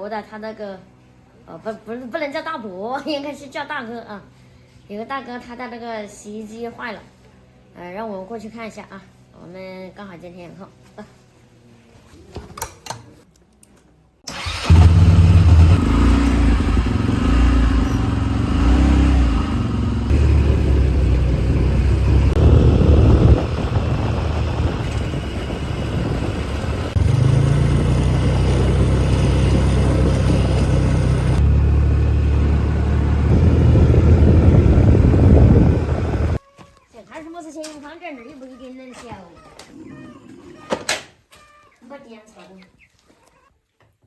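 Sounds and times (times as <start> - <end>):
vehicle engine running: 14.4 - 36.4.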